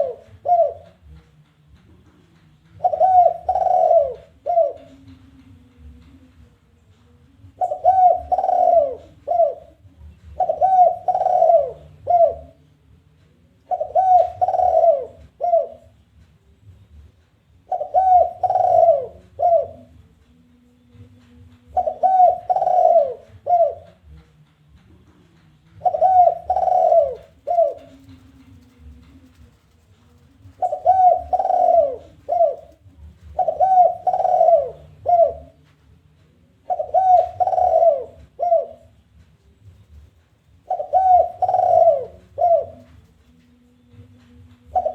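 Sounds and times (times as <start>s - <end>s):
dove cooing: 0.0s - 1.0s, 2.7s - 5.2s, 7.5s - 12.6s, 13.7s - 15.9s, 17.7s - 20.0s, 21.7s - 24.0s, 25.8s - 35.6s, 36.6s - 39.0s, 39.6s - 44.0s, 44.7s - 44.9s.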